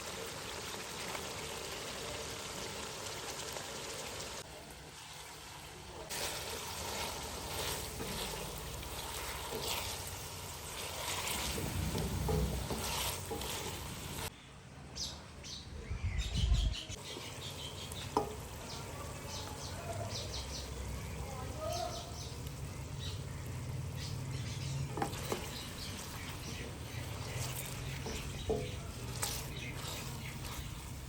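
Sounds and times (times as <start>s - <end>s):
food sizzling in a pan: 0.0s - 14.3s, 17.0s - 31.0s
faint bird chirps: 14.3s - 31.0s.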